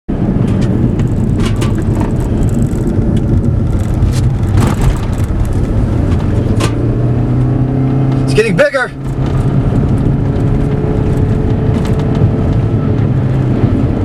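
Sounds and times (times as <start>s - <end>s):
car engine and road noise: 0.1s - 14.0s
clicks and rattles: 0.4s - 6.8s, 9.0s - 12.6s.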